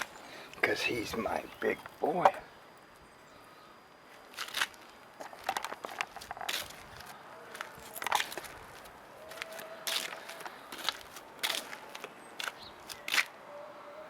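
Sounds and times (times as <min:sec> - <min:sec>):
crunching and crackling: 0:04.2 - 0:13.4.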